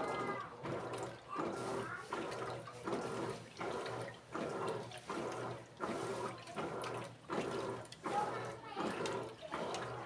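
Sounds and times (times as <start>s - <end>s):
washing machine water sloshing: 2.2s - 10.0s.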